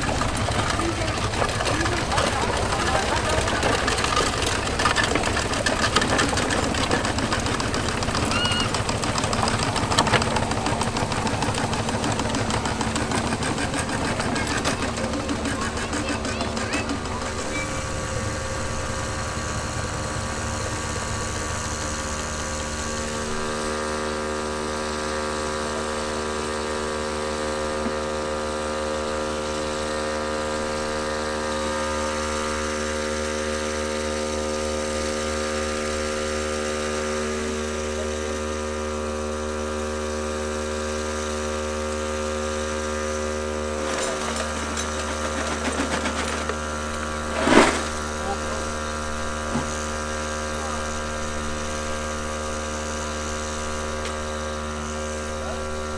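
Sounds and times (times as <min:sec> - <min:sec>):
light rattles: 0:00.0 - 0:23.2, 0:43.5 - 0:50.0
machinery humming: 0:00.0 - 0:55.9.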